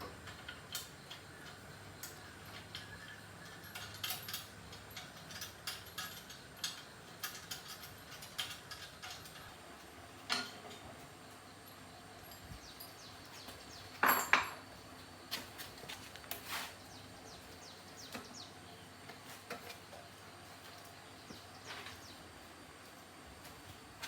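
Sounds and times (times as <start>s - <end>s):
metal tools clinking: 0.3s - 9.6s, 11.7s - 14.7s.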